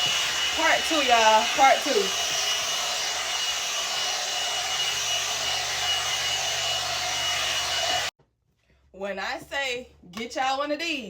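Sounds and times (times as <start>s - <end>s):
hair dryer brush running: 0.0s - 8.1s.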